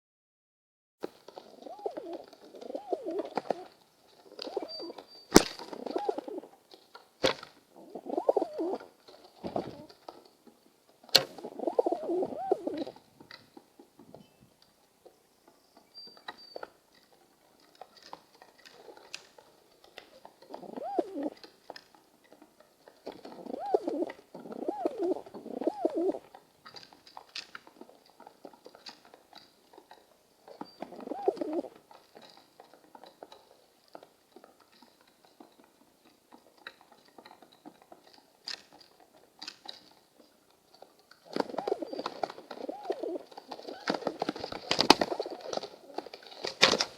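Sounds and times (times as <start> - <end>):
pigeons cooing: 1.3 - 6.5, 7.7 - 10.0, 11.3 - 13.0, 20.4 - 21.4, 23.1 - 26.3, 30.6 - 31.8, 41.2 - 46.1.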